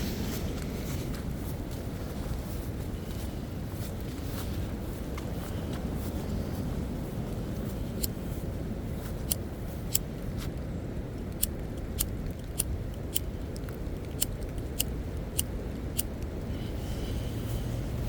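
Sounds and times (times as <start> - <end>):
footsteps crunching: 0.0 - 9.3.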